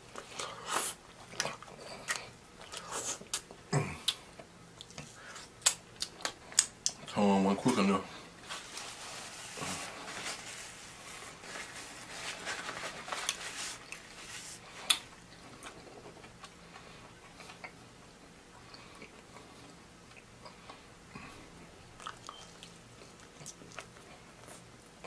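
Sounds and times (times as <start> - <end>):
person chewing: 0.1 - 7.1, 14.7 - 17.8, 22.0 - 24.7
wet mouth clicks and smacks: 4.8 - 7.0.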